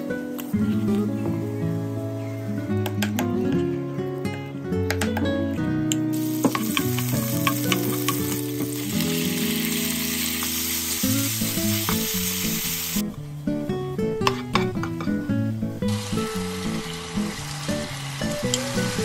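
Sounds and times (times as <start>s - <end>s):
soft background music: 0.0s - 19.0s
garlic sizzling in oil: 6.1s - 13.1s, 15.9s - 19.0s
spatula clicking against pan: 6.5s - 8.3s.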